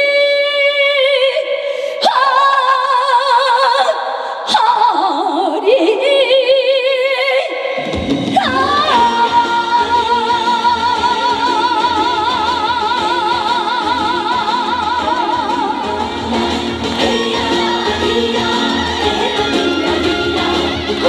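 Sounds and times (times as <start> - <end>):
woman singing with vibrato: 0.0 - 21.0
band accompaniment: 7.8 - 21.0.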